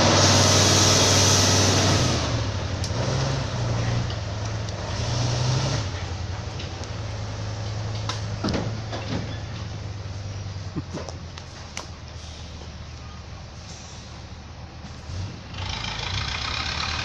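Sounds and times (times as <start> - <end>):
heavy vehicle engine running: 0.0 - 17.0
knocks and clatters: 6.0 - 9.9.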